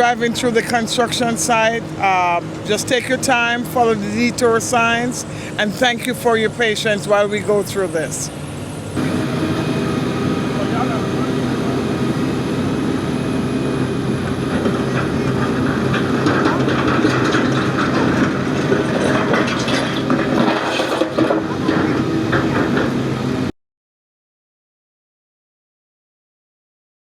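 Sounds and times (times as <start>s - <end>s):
heavy demolition machinery running: 0.0s - 23.5s
clattering and cracking: 15.4s - 22.9s.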